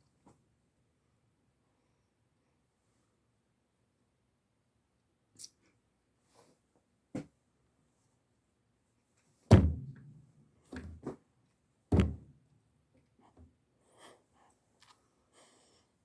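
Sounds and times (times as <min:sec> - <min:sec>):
dull thumps: 0:09.5 - 0:11.2, 0:11.9 - 0:12.4.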